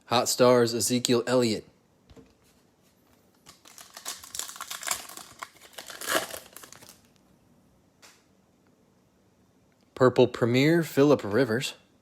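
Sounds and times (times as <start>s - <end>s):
card pack wrapper crinkling: 3.3s - 7.2s.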